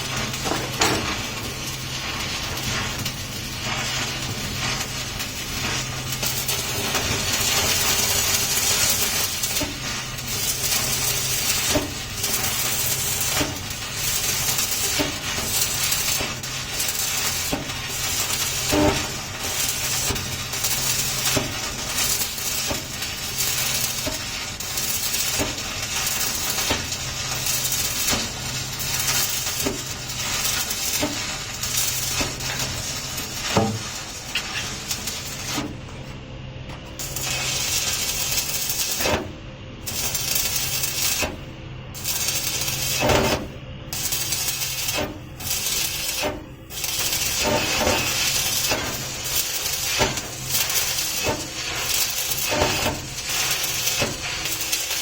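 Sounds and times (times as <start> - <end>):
welding arc crackling: 0.0 - 36.1, 36.7 - 55.0.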